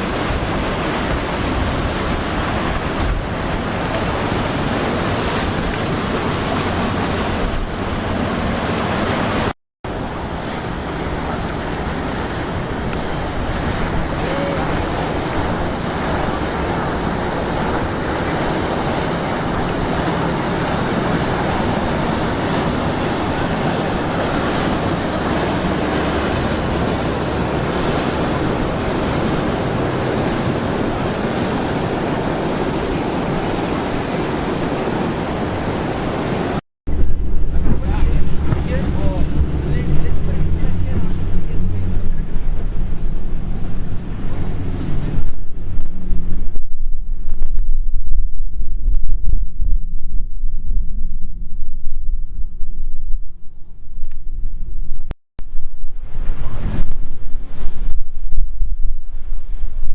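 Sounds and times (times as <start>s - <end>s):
boat engines humming: 0.0s - 47.5s
rough waves: 0.0s - 59.9s
water rushing past hull: 0.0s - 59.9s
wind: 0.0s - 59.9s.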